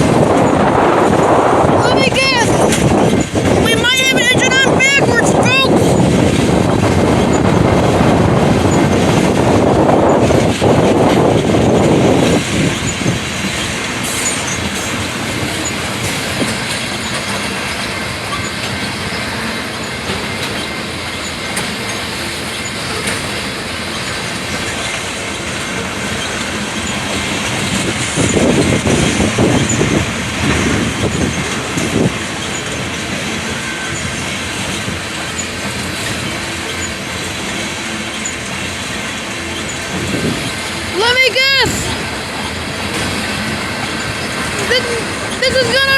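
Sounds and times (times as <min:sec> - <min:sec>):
wheels clattering over rail joints: 0:00.0 - 0:45.9
wheel squeal: 0:14.0 - 0:14.9, 0:37.8 - 0:38.6.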